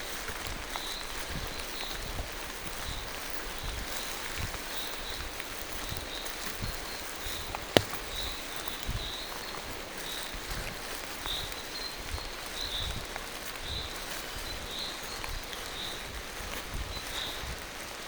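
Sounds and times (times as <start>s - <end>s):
rain falling through trees: 0.0s - 18.0s
footsteps on wet ground: 5.2s - 8.8s
sharp tap: 7.6s - 8.3s.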